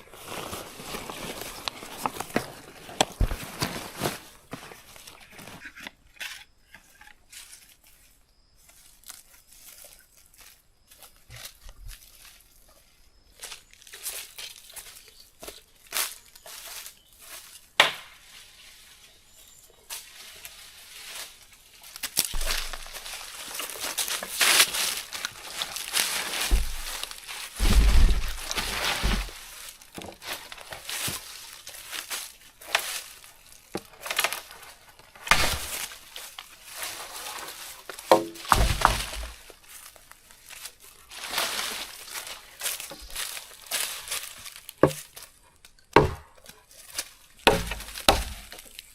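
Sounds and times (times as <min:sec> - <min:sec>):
rustling and crinkling: 0:00.0 - 0:48.9.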